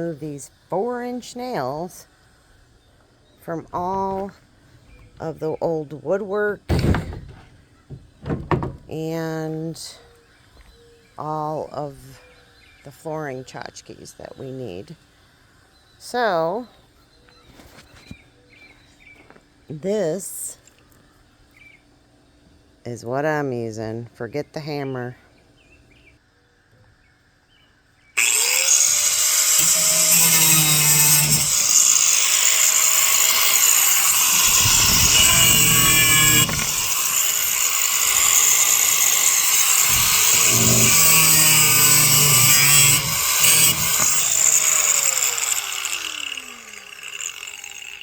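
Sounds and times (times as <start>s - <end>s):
grinder cutting through nails: 6.7s - 9.0s, 28.2s - 48.0s
angle grinder motor whining: 28.2s - 48.0s.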